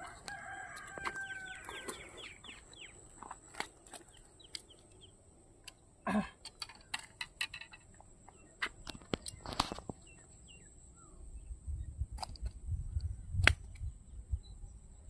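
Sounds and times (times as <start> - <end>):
bird chirps: 0.5 - 5.9, 8.2 - 11.9
sharp clicks: 8.6 - 10.0.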